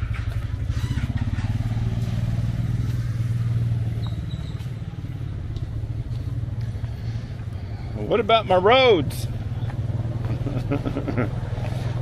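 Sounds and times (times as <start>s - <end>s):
small motorcycle engine running: 0.0s - 7.7s.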